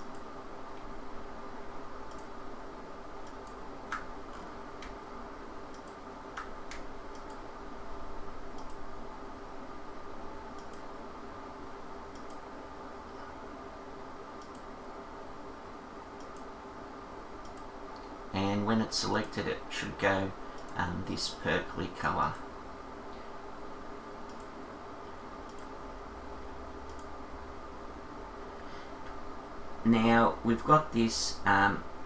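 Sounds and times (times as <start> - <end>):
computer mouse clicking: 0.0 - 0.9, 2.1 - 2.3, 3.2 - 5.0, 5.7 - 7.4, 8.5 - 8.8, 10.6 - 10.9, 12.1 - 12.4, 14.4 - 14.7, 16.2 - 16.5, 17.4 - 18.1, 20.6 - 20.8, 24.3 - 24.6, 25.4 - 25.8, 26.8 - 27.2
steady hum: 0.0 - 32.0.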